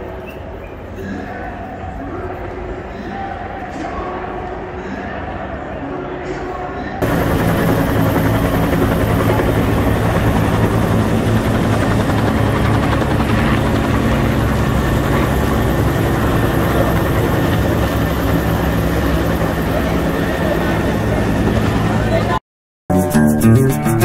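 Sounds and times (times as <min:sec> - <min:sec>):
helicopter rotor and engine drone: 0:07.0 - 0:22.4.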